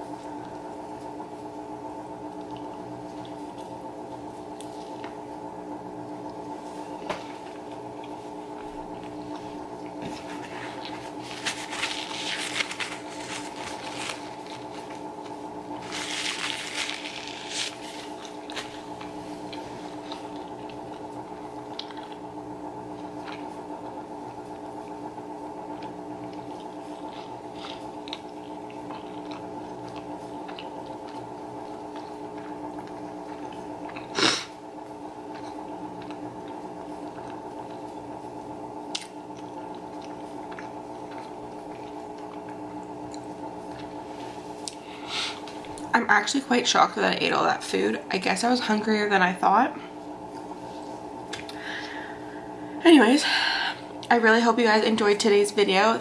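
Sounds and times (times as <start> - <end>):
low hum: 0.0 - 56.0
chewing food with mouth closed: 2.2 - 5.2, 7.3 - 25.0, 25.6 - 38.1, 38.8 - 45.9.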